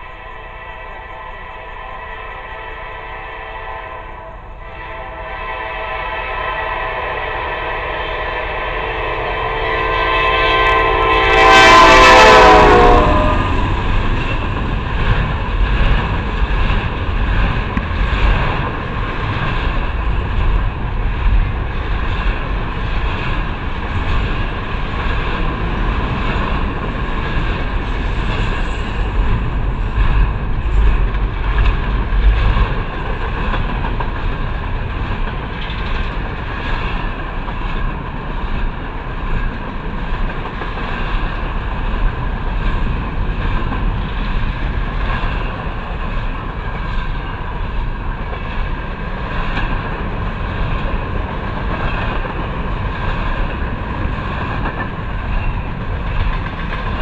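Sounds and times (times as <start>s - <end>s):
locomotive air horn chord: 0.0s - 14.1s
train wheels clickety-clack on rails: 0.0s - 57.0s.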